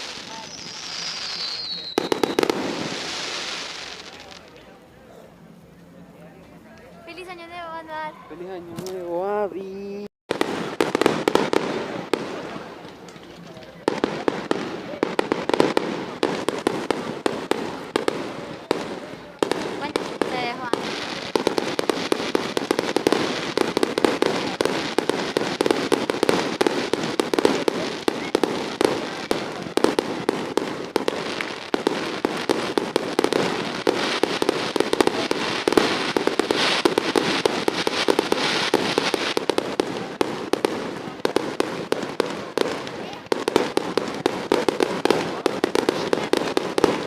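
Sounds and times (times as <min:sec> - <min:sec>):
fireworks banging and crackling: 0:00.0 - 0:04.8, 0:07.0 - 0:47.0.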